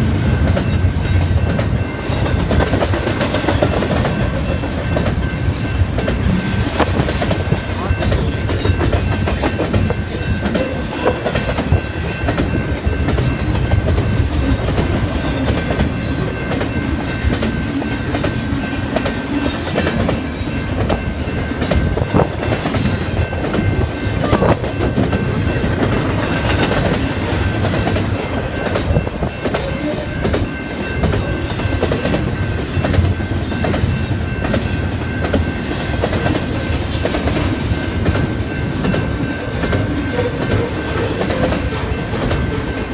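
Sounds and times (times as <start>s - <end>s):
train wheels clicking over rail joints: 0.0s - 42.9s.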